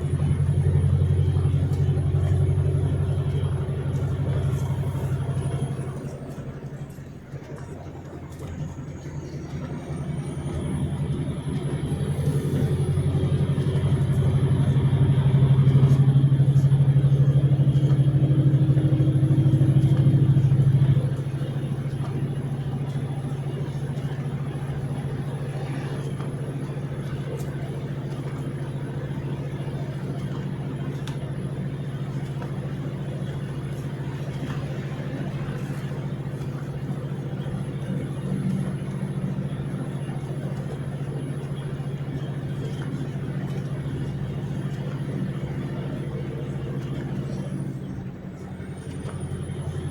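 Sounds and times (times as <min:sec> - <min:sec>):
car engine running: 0:00.0 - 0:49.9.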